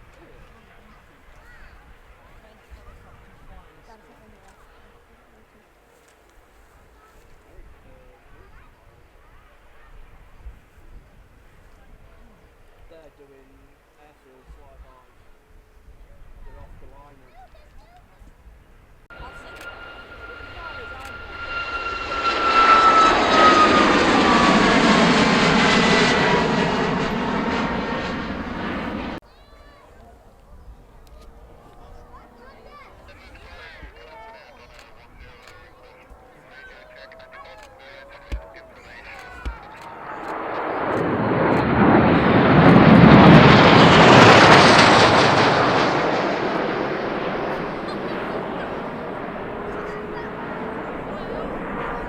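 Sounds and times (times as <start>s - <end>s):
jet whine sliding down: 19.1s - 29.2s, 39.8s - 50.4s
jets flying past: 19.1s - 29.2s, 31.2s - 52.0s.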